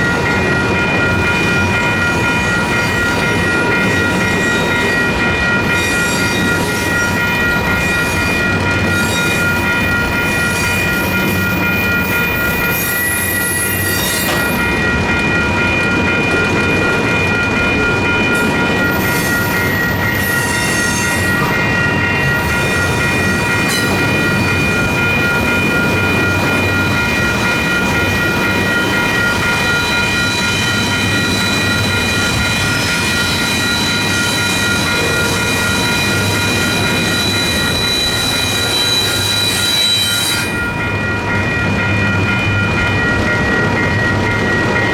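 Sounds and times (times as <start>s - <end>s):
crossing warning bell ringing: 0.0s - 44.9s
freight train wheel rumble: 0.0s - 44.9s
high wheel squeal: 10.3s - 14.6s, 18.4s - 24.5s, 29.9s - 40.7s.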